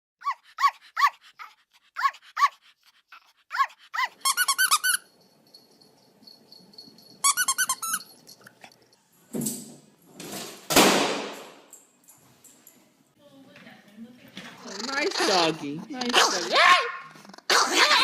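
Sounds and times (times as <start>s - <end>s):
small dog yelping: 0.2s - 2.6s, 3.5s - 4.3s, 14.8s - 18.0s.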